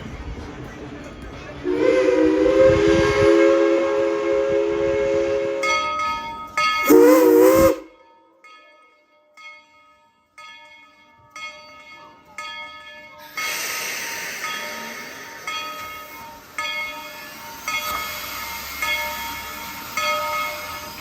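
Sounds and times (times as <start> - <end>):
steam locomotive bell ringing: 1.6 - 21.0
loud steam hiss: 6.8 - 7.8, 13.2 - 21.0.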